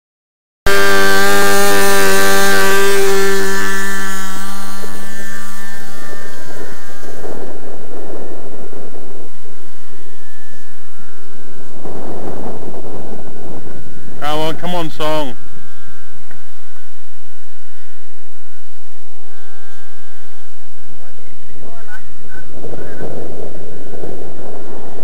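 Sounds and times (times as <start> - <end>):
model aircraft engine at high revs: 0.7 - 15.2
wind noise on microphone: 0.7 - 25.0.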